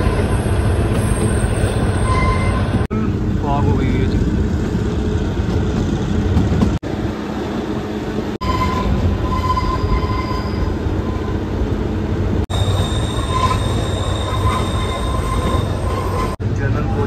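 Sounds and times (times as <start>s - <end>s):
high wheel squeal: 0.0s - 2.9s, 8.4s - 11.5s, 12.5s - 16.4s
train wheels rumbling on rail: 0.0s - 17.0s.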